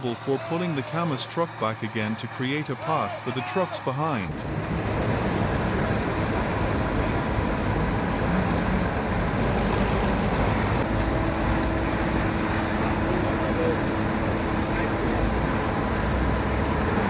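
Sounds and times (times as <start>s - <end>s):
heavy diesel engines under load: 0.0s - 17.0s.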